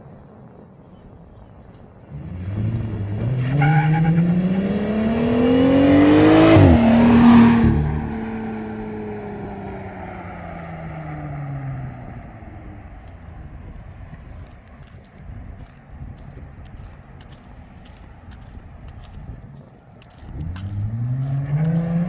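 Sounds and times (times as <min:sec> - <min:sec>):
car engine accelerating hard: 0:02.1 - 0:12.9, 0:20.4 - 0:22.0.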